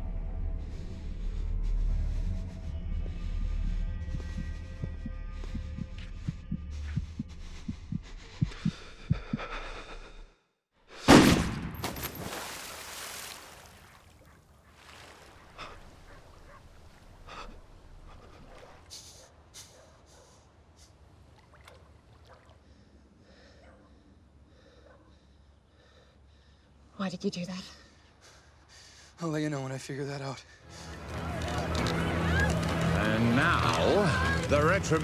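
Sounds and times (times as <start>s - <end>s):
low heartbeat-like thumping: 3.0s - 10.1s.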